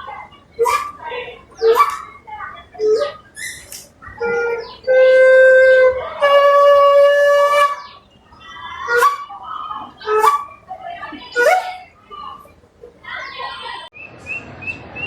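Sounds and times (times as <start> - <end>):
long flute notes: 2.8 - 8.0, 8.8 - 10.7, 11.3 - 11.9.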